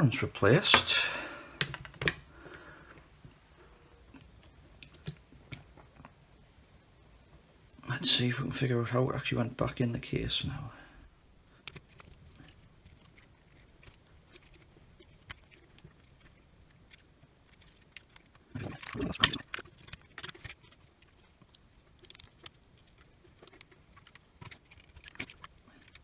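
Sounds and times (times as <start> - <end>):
small plastic clicks and taps: 1.6 - 2.2.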